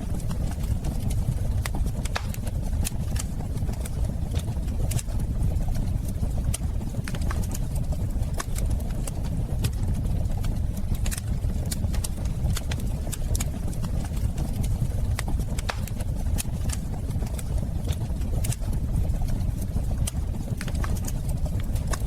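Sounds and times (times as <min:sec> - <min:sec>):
fire crackling and popping: 0:00.0 - 0:22.0
fire rumbling: 0:00.0 - 0:22.0.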